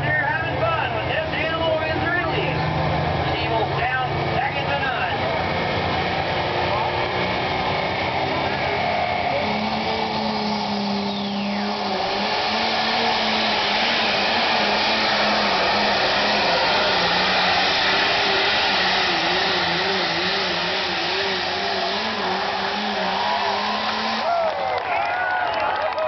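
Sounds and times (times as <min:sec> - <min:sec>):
tractor engine droning under load: 0:00.0 - 0:25.2.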